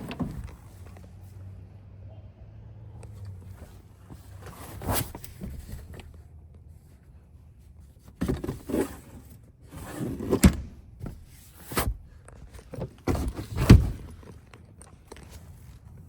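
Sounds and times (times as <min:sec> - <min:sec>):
rustling handling noise: 0:03.0 - 0:16.0
sharp thunks: 0:10.3 - 0:12.0, 0:13.0 - 0:14.2.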